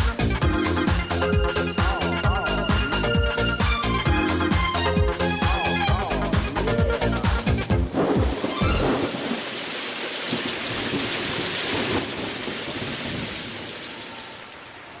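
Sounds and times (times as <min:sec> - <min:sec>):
rain falling: 0:00.0 - 0:15.0
thunder rumble: 0:06.1 - 0:15.0.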